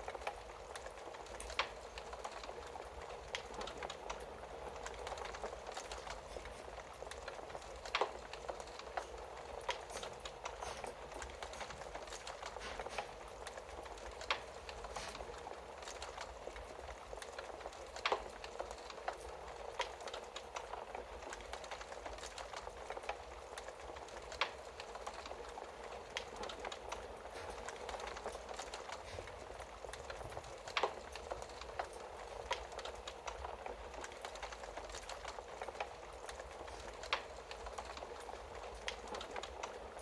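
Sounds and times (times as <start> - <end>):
fire hissing and crackling: 0.0 - 40.0
sharp pops of burning wood: 0.2 - 39.8.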